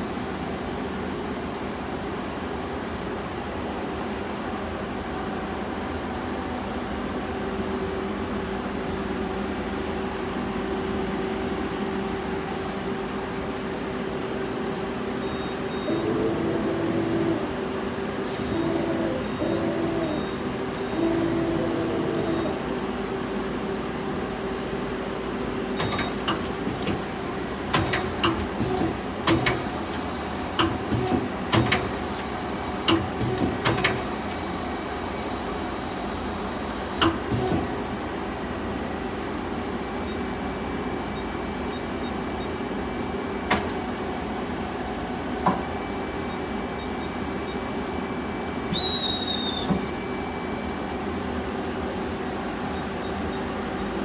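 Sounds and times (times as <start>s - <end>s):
machine hum: 10.2s - 38.0s
sharp clicks and clunks: 25.8s - 34.7s, 36.6s - 37.7s, 43.5s - 44.1s.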